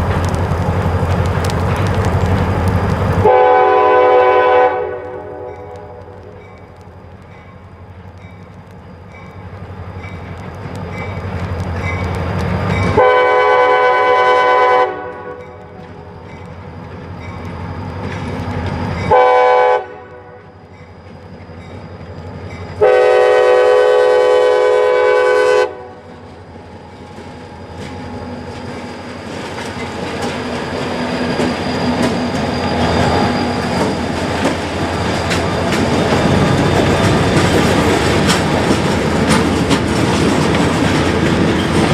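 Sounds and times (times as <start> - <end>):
wheels clattering on rail: 0.0 - 3.4, 5.4 - 14.0, 15.2 - 19.4, 20.5 - 23.0, 26.1 - 41.9
locomotive engine rumble: 0.0 - 41.9
train horn blasts: 3.2 - 6.3, 12.9 - 15.6, 19.1 - 20.6, 22.8 - 26.1.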